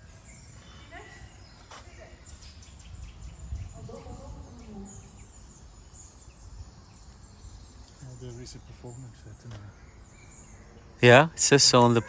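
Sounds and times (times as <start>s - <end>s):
birds chirping: 0.0s - 12.0s
wind rumble on microphone: 0.4s - 7.8s.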